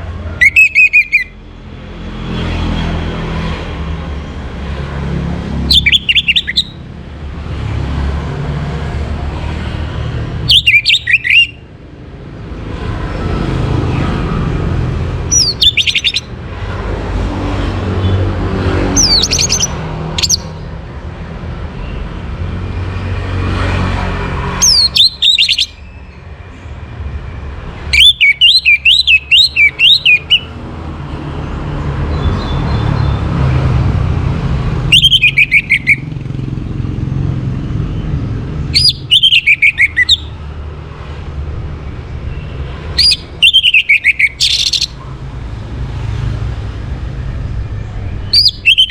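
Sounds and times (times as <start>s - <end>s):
thrush singing whistled phrases: 0.4s - 1.4s, 5.7s - 6.8s, 10.5s - 11.7s, 15.3s - 16.3s, 19.0s - 20.6s, 24.6s - 26.2s, 27.9s - 30.5s, 34.9s - 36.2s, 38.7s - 40.4s, 42.3s - 45.0s, 48.2s - 48.9s.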